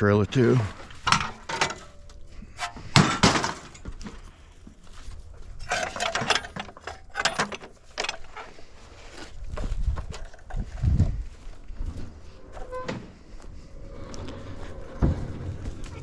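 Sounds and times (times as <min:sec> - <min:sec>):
scrap metal clattering: 0:00.6 - 0:04.3, 0:05.4 - 0:08.6.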